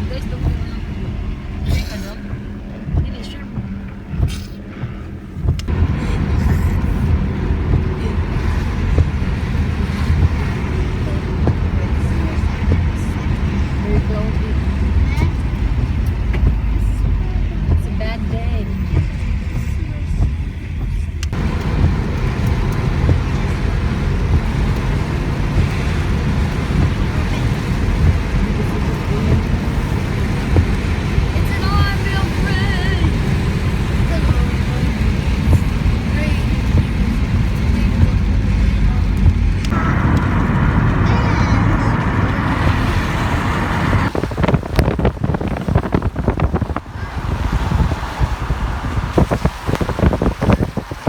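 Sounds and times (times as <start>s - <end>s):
car road and engine rumble: 0.0s - 51.0s
wind buffeting microphone: 0.0s - 51.0s.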